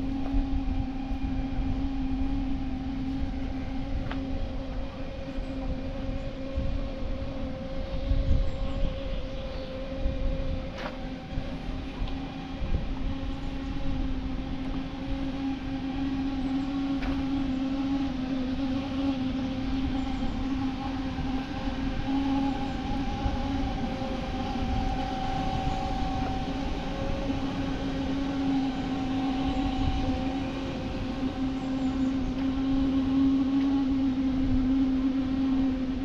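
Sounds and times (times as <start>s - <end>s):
machine humming: 0.0s - 36.0s.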